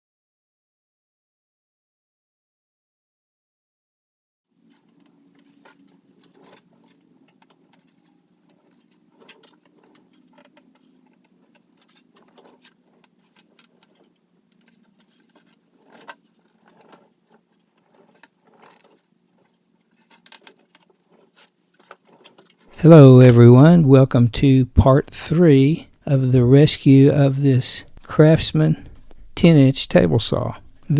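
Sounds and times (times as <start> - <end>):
low steady hum: 4.6 - 30.9.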